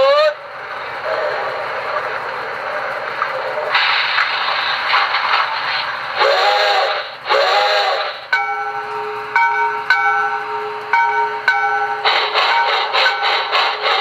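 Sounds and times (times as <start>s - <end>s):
steam hiss: 3.7s - 8.4s, 11.9s - 14.0s
steam whistle toots: 6.2s - 9.4s
locomotive bell ringing: 8.3s - 14.0s.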